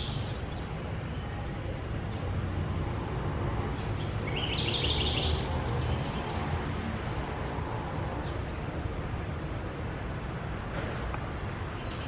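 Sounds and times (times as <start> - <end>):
bird chirping: 0.0 - 1.3, 3.7 - 6.9, 11.8 - 12.0.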